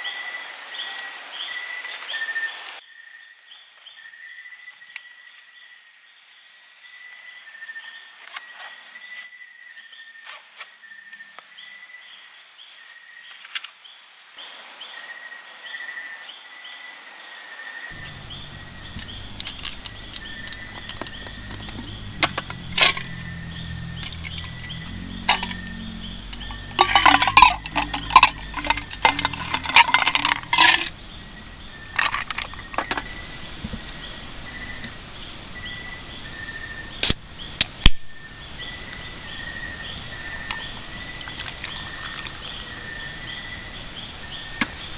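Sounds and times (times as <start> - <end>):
small hard objects clinking: 17.9 - 38.0, 38.9 - 44.9
night insects chirping: 17.9 - 44.9.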